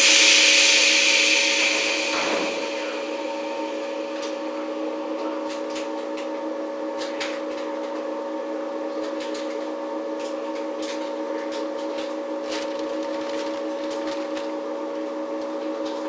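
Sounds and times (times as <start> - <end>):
hiss: 0.0 - 4.8
steady electrical hum: 0.0 - 16.0.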